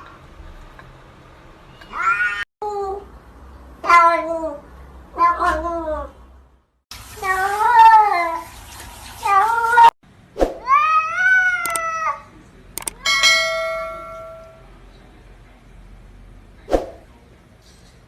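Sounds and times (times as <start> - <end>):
cat meowing: 1.8 - 2.4
clear ringing tone: 12.8 - 14.7.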